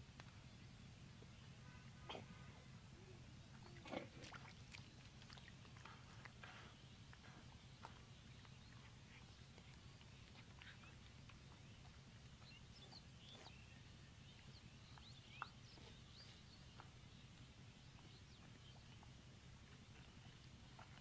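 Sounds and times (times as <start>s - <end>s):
low hum: 0.0s - 21.0s
bird chirps: 10.2s - 19.1s.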